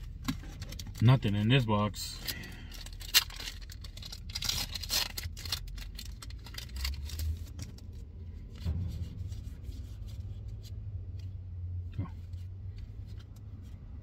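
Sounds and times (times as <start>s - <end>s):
packaging crinkling and tearing: 2.2s - 8.0s.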